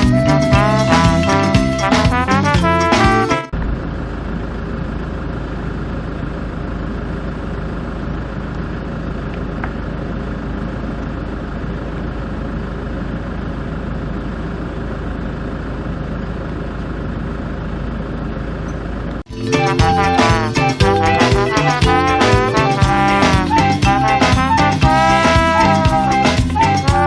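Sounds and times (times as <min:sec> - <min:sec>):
motor vehicle running: 0:00.0 - 0:19.2.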